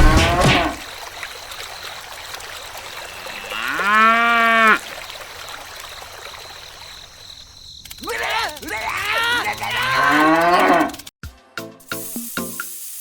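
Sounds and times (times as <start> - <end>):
cow mooing: 3.1 - 4.8, 9.0 - 11.0.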